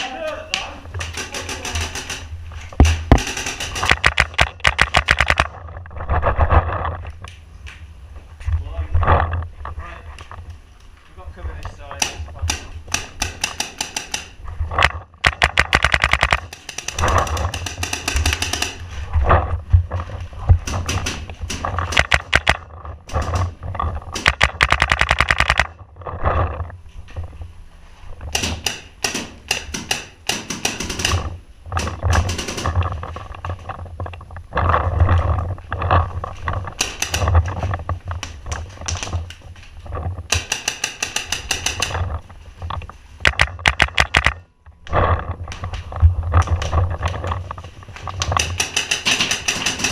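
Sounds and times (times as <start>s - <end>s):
paintball markers firing: 1.0s - 5.5s, 12.0s - 18.8s, 20.7s - 22.6s, 24.2s - 25.8s, 28.4s - 31.3s, 40.3s - 42.0s, 43.3s - 44.4s, 48.4s - 49.9s.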